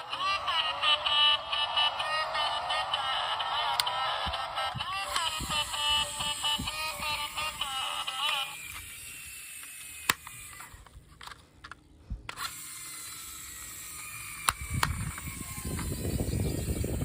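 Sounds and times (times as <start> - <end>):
plastic toy clicks: 5.0 - 16.5.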